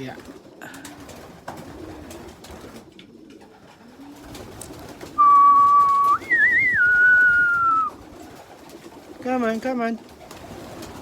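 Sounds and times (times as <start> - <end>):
pigeons cooing: 0.0 - 9.5
loud whistled note: 5.2 - 7.9.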